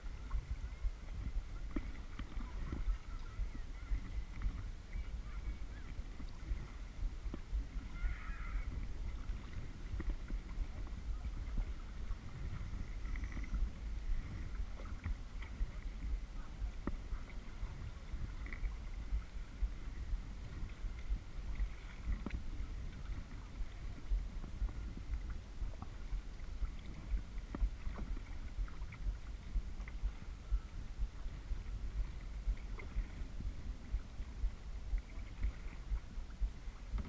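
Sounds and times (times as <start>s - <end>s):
low steady rumble: 0.0s - 37.0s
water splashing and lapping on hull: 0.0s - 37.0s.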